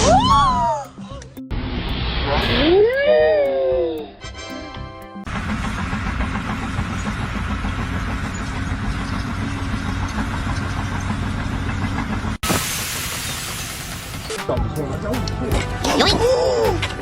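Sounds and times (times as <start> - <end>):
engine running: 5.1 - 17.0.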